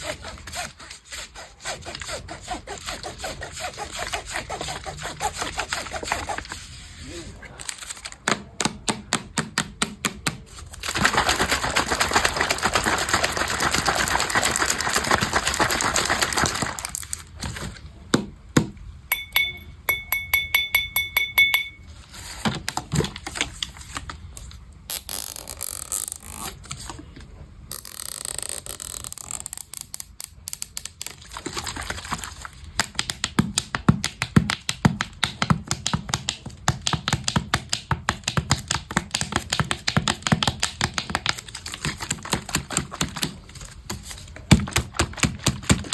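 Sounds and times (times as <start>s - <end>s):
high ringing pings: 19.1s - 21.9s
rapid tapping and clicking: 32.8s - 45.9s.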